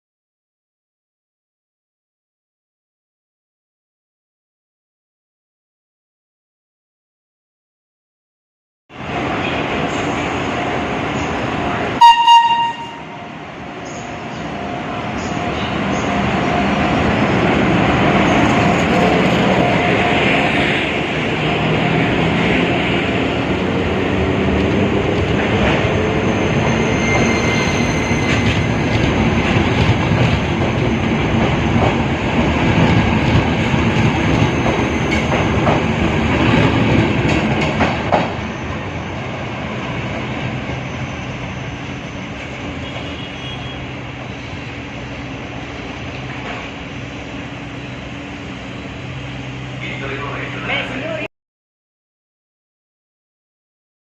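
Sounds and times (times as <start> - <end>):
high squeal: 25.9 - 28.9, 40.6 - 42.3
train wheels clattering: 32.7 - 38.4.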